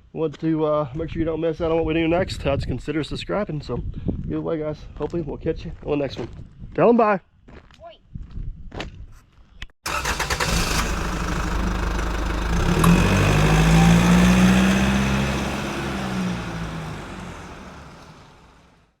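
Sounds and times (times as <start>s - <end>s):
dump truck diesel engine running: 9.9s - 18.8s.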